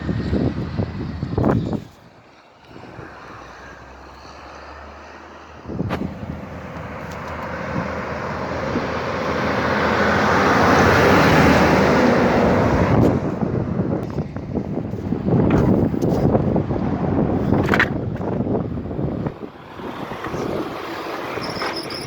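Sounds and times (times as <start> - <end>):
vehicle engine and tyre noise passing: 0.0 - 22.0.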